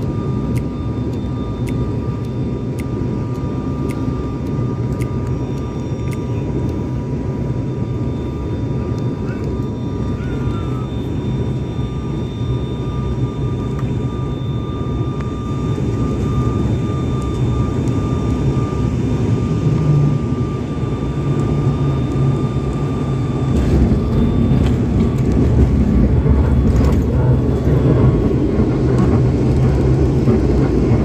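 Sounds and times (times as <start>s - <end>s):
airliner engine and airflow rumble: 0.0s - 31.0s
faint high whine: 0.0s - 31.0s.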